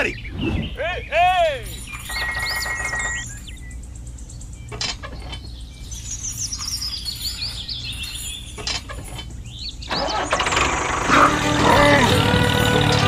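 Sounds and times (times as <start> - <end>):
steady low hum: 0.0 - 8.6
birds chirping: 0.0 - 13.0.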